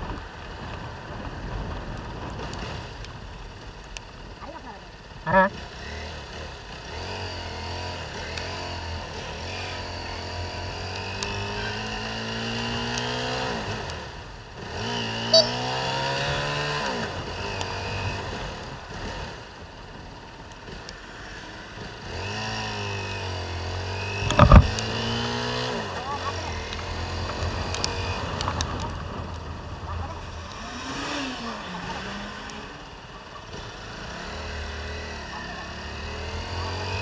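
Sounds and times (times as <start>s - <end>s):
road noise: 0.0s - 37.0s
motorcycle engine accelerating: 5.2s - 37.0s.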